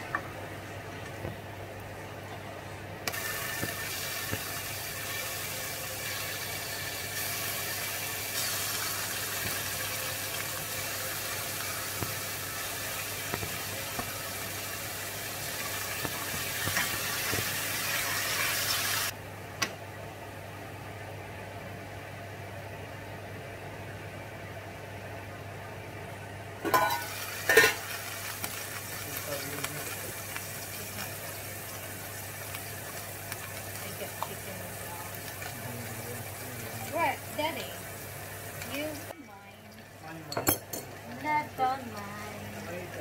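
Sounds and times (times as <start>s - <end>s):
chicken sizzling in frying pan: 3.1s - 19.1s, 26.7s - 39.2s.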